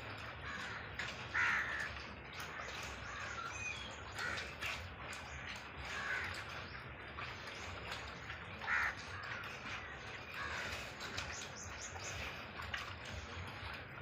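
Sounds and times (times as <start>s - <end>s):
bird cawing: 0.4s - 2.0s, 2.6s - 4.7s, 5.8s - 6.4s, 8.6s - 11.9s.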